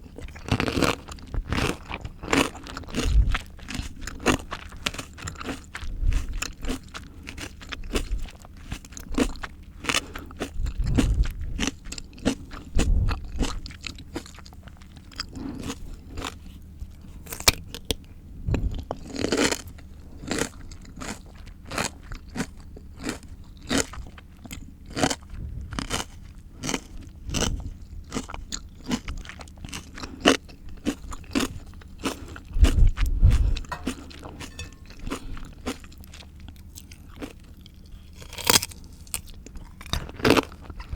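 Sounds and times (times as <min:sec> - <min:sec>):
crunchy chewing: 0:00.0 - 0:40.9
low thumps: 0:25.3 - 0:25.9, 0:32.5 - 0:35.4.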